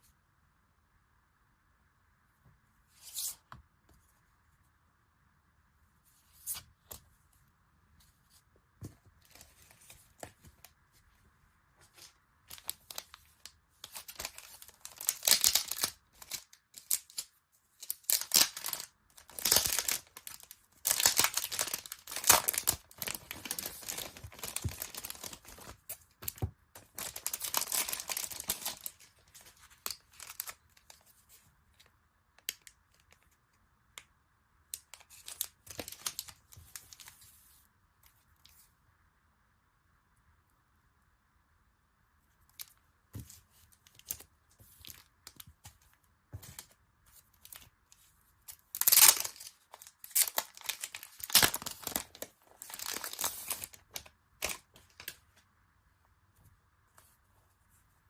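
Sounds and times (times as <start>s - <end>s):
packaging ripping and rustling: 13.8s - 30.9s, 48.7s - 55.1s.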